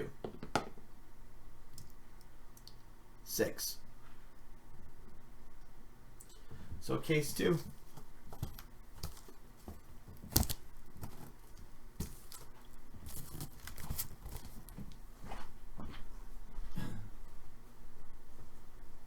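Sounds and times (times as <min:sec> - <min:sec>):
cardboard being handled and torn: 0:07.6 - 0:14.9.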